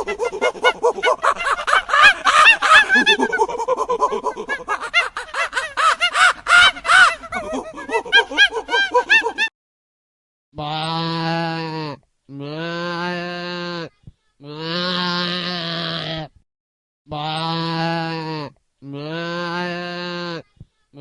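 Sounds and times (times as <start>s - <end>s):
chorus of animal calls: 0.0s - 9.5s.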